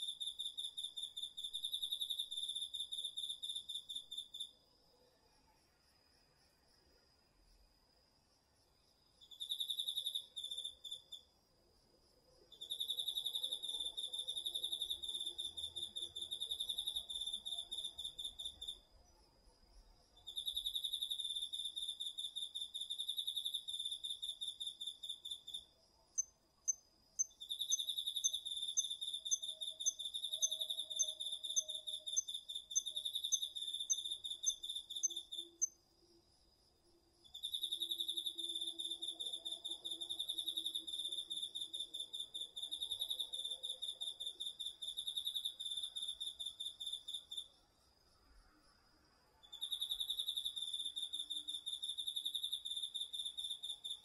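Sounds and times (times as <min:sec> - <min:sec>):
short high insect chirps: 0:22.4 - 0:35.8.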